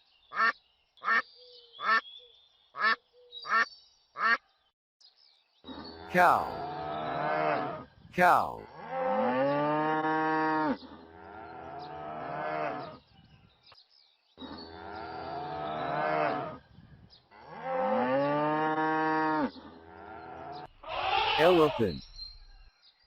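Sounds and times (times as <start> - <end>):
cow mooing: 5.9 - 7.8, 8.6 - 13.0, 14.6 - 16.6, 17.4 - 21.6.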